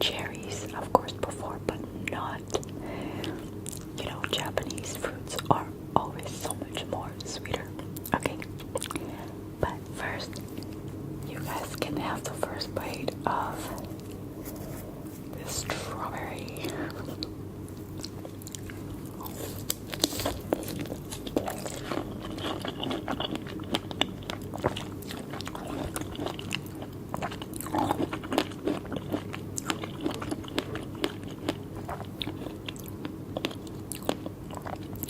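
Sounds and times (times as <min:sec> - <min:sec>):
biting and chewing strawberry: 0:10.2 - 0:35.0.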